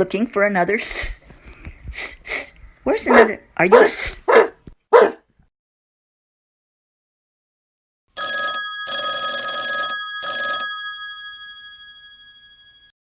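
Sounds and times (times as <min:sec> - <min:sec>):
alarm clock bell ringing: 0:08.2 - 0:13.0.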